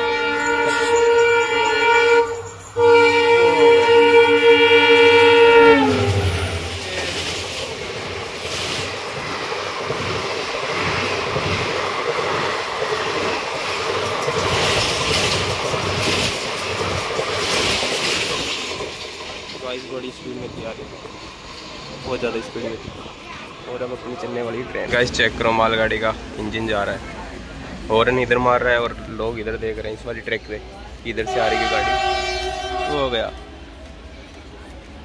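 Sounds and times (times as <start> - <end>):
train horn: 0.0 - 7.2, 31.2 - 33.6
train wheels clattering: 0.0 - 23.5.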